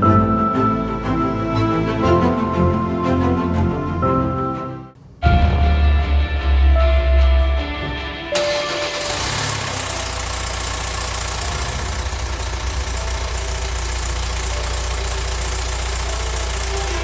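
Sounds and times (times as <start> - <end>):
diesel engine idling: 8.4 - 17.0.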